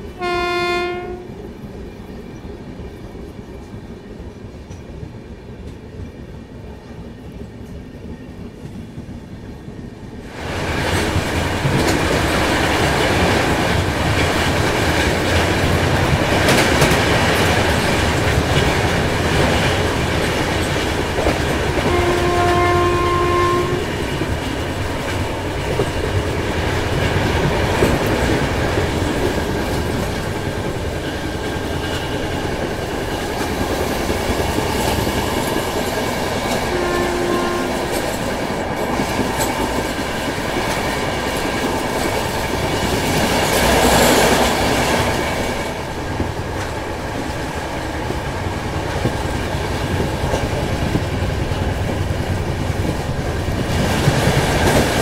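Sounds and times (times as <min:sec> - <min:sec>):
train wheels clattering on rails: 0:00.0 - 0:55.0
locomotive horn blasts: 0:00.2 - 0:01.4, 0:21.8 - 0:24.0, 0:36.7 - 0:38.0.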